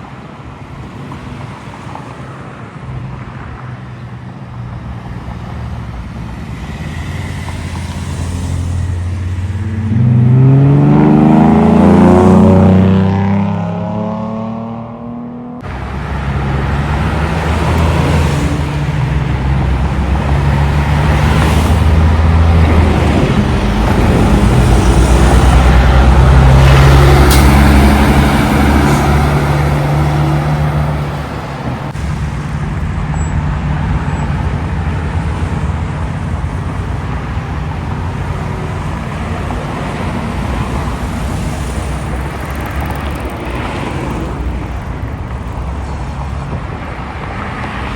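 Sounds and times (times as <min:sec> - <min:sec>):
heavy trucks passing: 0:00.0 - 0:47.9
steady traffic noise: 0:00.0 - 0:47.9.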